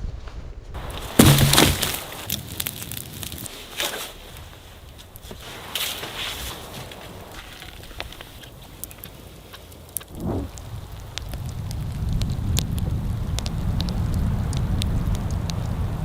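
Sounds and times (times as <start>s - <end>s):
rain dripping in woodland: 0.8s - 16.0s
muffled thump: 1.0s - 2.2s
low rumble: 10.1s - 16.0s.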